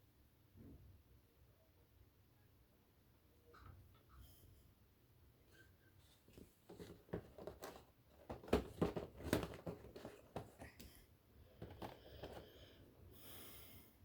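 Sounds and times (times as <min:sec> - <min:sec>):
packaging crinkling and rustling: 0:06.4 - 0:10.9.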